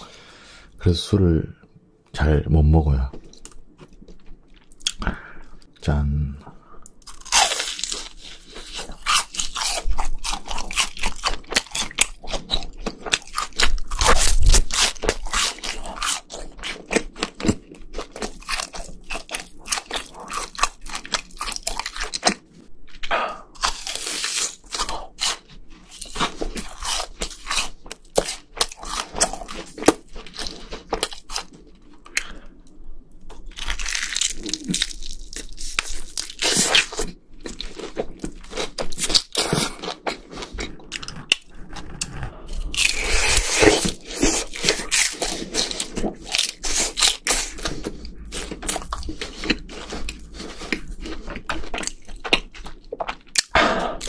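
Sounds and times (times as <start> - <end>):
crunching crisp fried food: 6.9 - 32.6, 33.2 - 53.7
wet chewing: 33.3 - 54.0.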